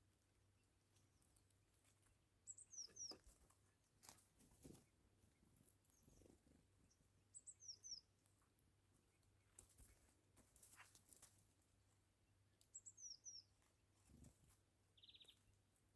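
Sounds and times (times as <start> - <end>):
small bird calling: 2.4 - 3.4, 5.9 - 8.1, 12.7 - 13.6, 15.0 - 15.5.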